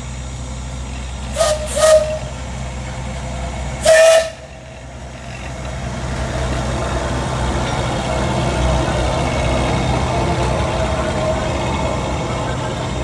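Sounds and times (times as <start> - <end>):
steam locomotive whistle blast: 1.3 - 2.5, 3.8 - 4.8.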